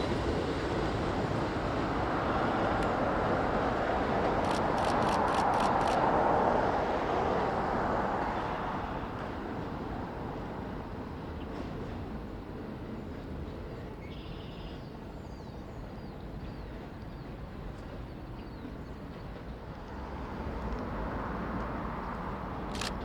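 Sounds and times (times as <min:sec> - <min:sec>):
outdoor background rumble: 0:00.0 - 0:10.2
train approaching: 0:00.0 - 0:23.0.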